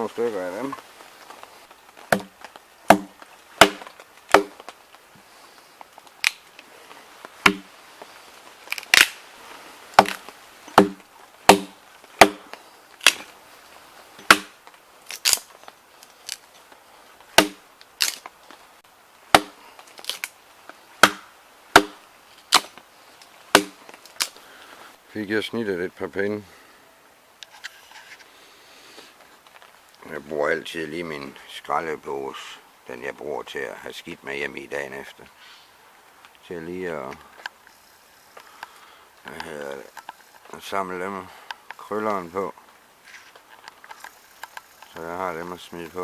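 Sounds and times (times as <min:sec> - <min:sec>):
firewood being split: 0:00.0 - 0:24.7.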